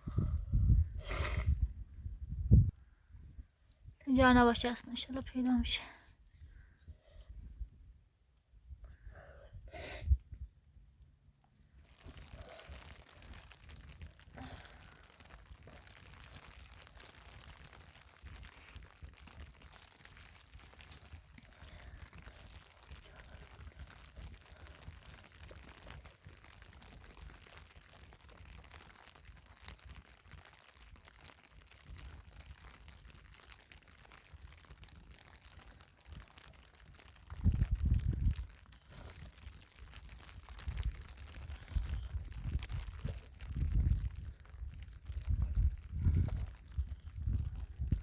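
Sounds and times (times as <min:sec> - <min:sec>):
wind buffeting microphone: 0:00.0 - 0:04.6, 0:37.4 - 0:38.5, 0:40.6 - 0:48.0.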